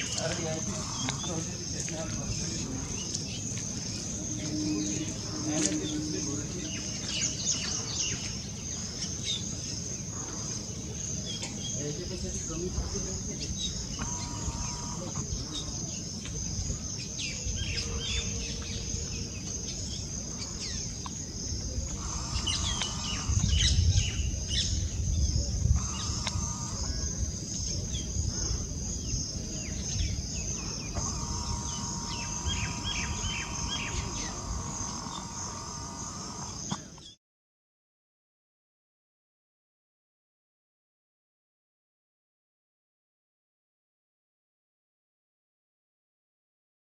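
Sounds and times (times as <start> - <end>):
high-pitched insect trill: 0.0 - 37.1
bird chirps: 17.0 - 28.1, 29.0 - 37.2.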